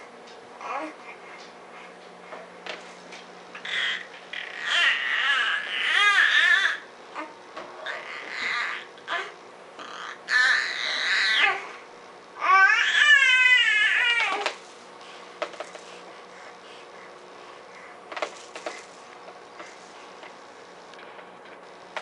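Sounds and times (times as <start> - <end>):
baby crying high-pitched: 3.6 - 6.9, 10.0 - 11.6, 12.4 - 14.4.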